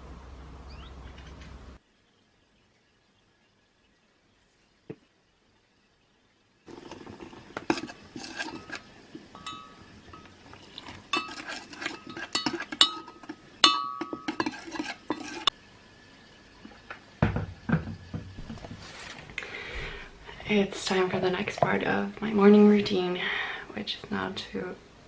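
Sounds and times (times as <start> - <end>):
dishes and cutlery clinking: 7.6 - 15.5.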